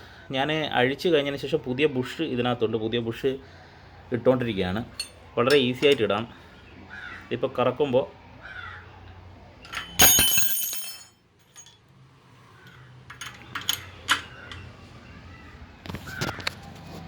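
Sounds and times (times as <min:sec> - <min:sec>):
spanner clinking on metal: 0:04.9 - 0:06.1, 0:09.6 - 0:11.9, 0:12.7 - 0:14.7.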